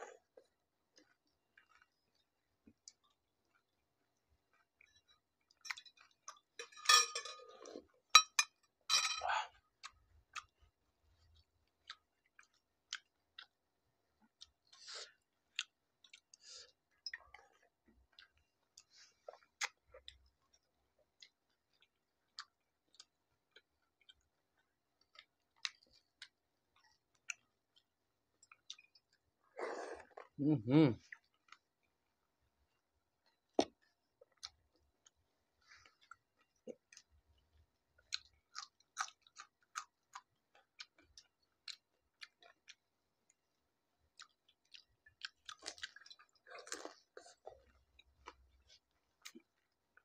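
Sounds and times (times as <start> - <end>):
utensils clinking on glass bowls: 6.6 - 7.5, 8.2 - 9.3
wet chewing: 33.6 - 50.0.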